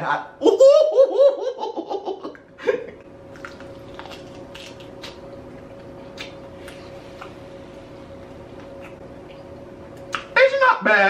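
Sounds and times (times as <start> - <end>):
faint steady hum: 0.0 - 11.0
person laughing: 0.4 - 3.0
chewing with mouth smacks: 3.0 - 7.4, 8.2 - 10.3.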